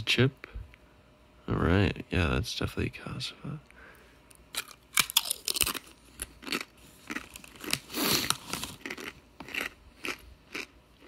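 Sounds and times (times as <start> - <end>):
chewing crisp chip crunches: 4.5 - 11.0
foil chip bag crinkling: 4.6 - 9.7.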